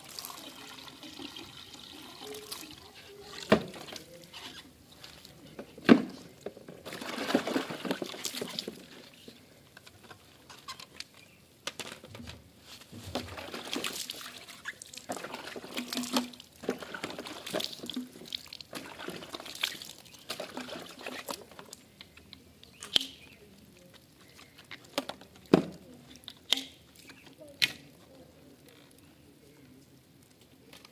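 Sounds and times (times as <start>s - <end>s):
water pouring and splashing: 0.0s - 5.3s, 6.8s - 9.3s, 12.8s - 21.9s.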